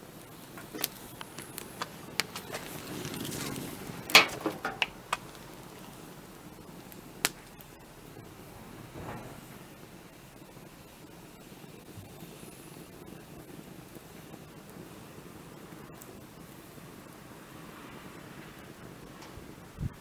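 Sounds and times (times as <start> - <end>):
wood fire crackling: 0.0 - 20.0
loud crack: 0.4 - 11.1.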